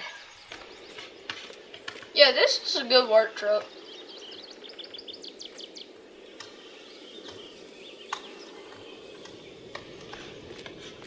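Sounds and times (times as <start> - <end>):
outdoor background hum: 0.0 - 11.0
small birds chirping: 0.0 - 11.0
faint clicks: 6.3 - 6.6.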